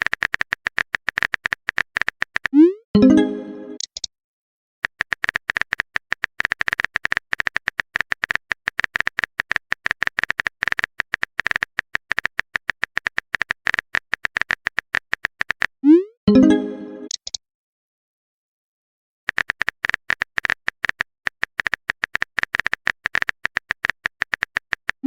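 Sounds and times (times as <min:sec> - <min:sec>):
phone keyboard typing clicks: 0:00.0 - 0:02.6, 0:03.8 - 0:04.1, 0:04.8 - 0:15.7, 0:17.1 - 0:17.4, 0:19.3 - 0:25.0.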